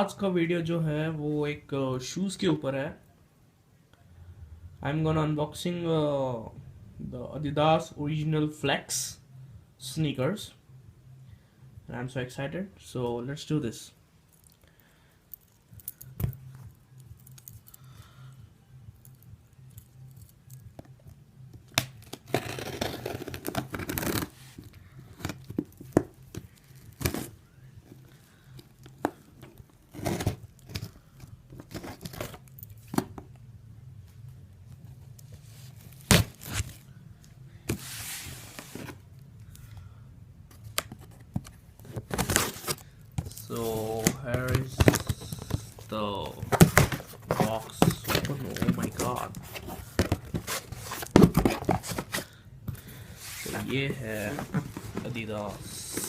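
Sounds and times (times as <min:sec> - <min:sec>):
packaging tearing and rustling: 0:41.9 - 0:52.4.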